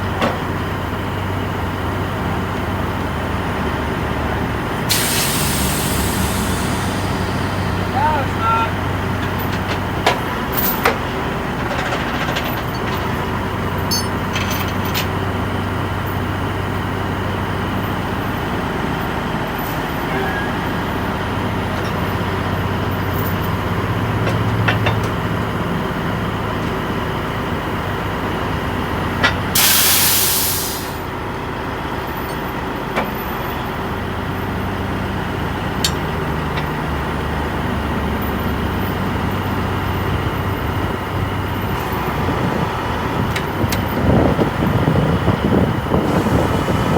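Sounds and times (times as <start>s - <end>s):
vehicle engine with road noise: 0.0s - 46.9s
loud hiss: 4.9s - 8.4s, 29.6s - 31.1s.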